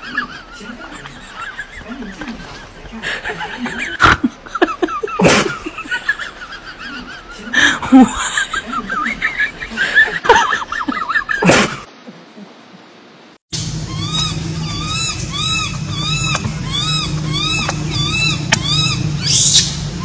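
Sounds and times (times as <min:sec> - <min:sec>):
baby monkey crying: 0:13.8 - 0:20.0.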